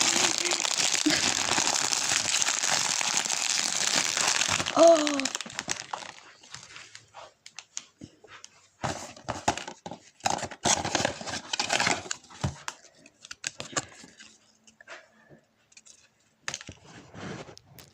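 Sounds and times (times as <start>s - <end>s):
packaging rustling and crinkling: 0.0s - 7.7s, 8.9s - 14.3s.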